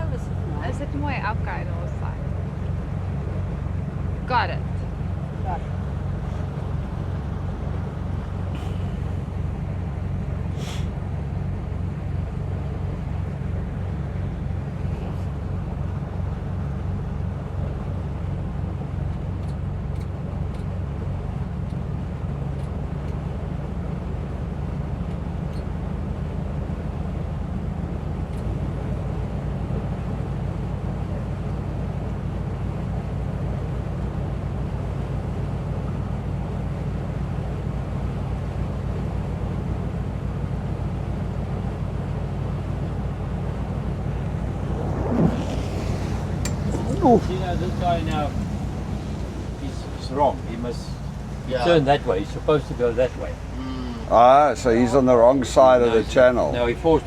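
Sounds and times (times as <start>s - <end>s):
boat engines droning: 0.0s - 57.0s
water wash: 0.0s - 57.0s
wind noise: 43.1s - 57.0s.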